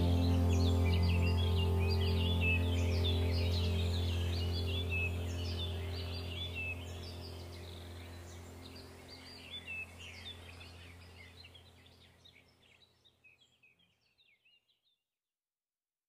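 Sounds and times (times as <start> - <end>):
low steady hum: 0.0 - 12.8
birds chirping: 0.0 - 14.8.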